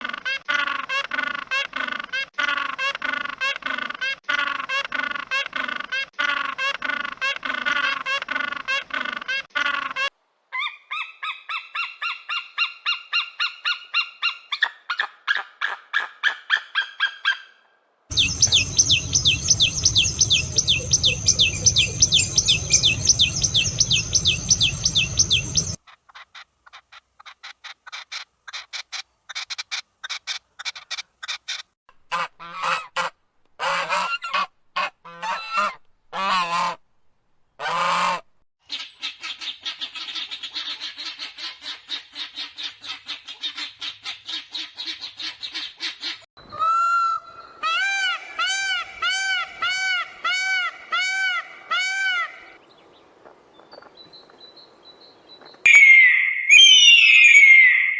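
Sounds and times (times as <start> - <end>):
fast high bird trill: 18.1 - 25.8, 55.7 - 57.9
low rumble: 18.1 - 25.8
faint bird chirps: 18.1 - 26.3, 55.4 - 57.9
rapid repeated bird notes: 18.1 - 31.7
loud separate bird calls: 55.7 - 57.9.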